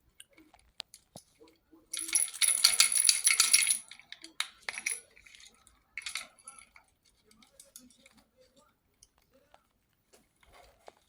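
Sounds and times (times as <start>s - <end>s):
parrot toy rattling: 1.9s - 8.2s
toy clicks: 2.0s - 6.8s.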